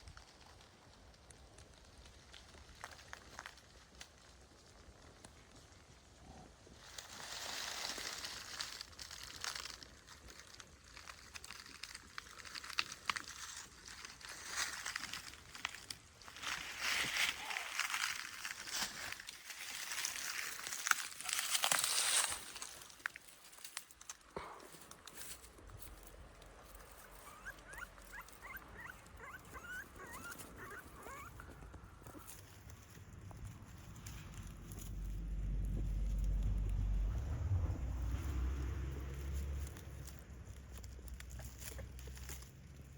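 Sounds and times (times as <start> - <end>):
rustling and crackling: 0.0 - 42.9
puppy whimpering: 26.8 - 32.4.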